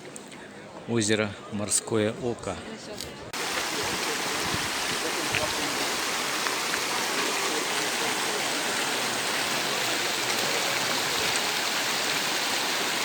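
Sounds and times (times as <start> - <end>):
flowing water rushing: 3.4 - 13.0.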